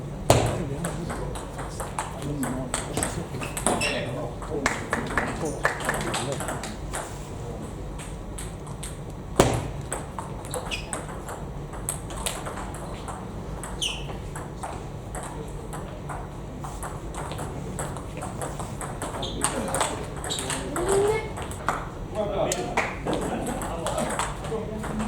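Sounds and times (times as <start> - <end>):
short squeaks: 3.4 - 4.1, 10.5 - 11.1, 13.6 - 14.2.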